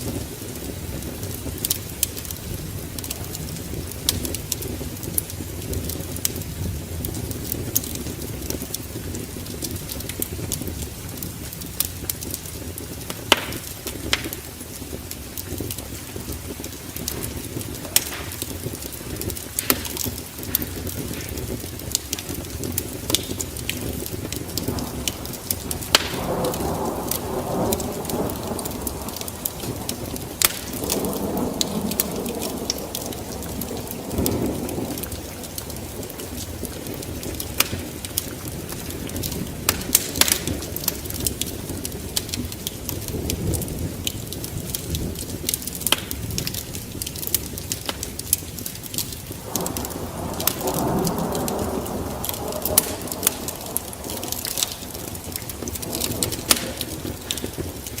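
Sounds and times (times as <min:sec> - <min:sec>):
steady rain: 0:00.0 - 0:58.0
wood fire crackling and popping: 0:00.0 - 0:58.0
distant thunder rumbling: 0:16.0 - 0:46.5, 0:49.3 - 0:58.0.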